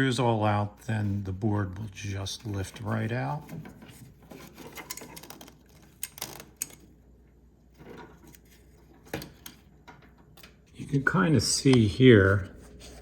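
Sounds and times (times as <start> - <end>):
small parts and tools clicking: 4.6 - 7.0.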